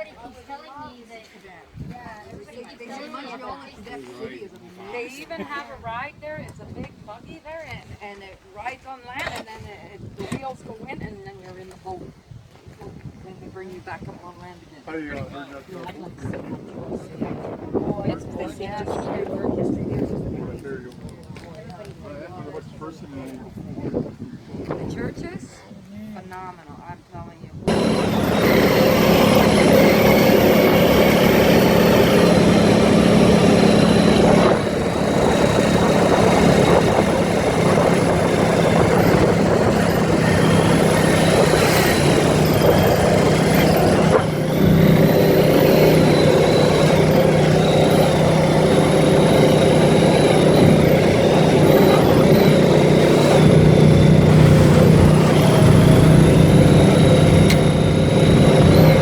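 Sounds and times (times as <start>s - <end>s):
atv engine running: 27.7s - 59.0s
road noise: 27.7s - 59.0s.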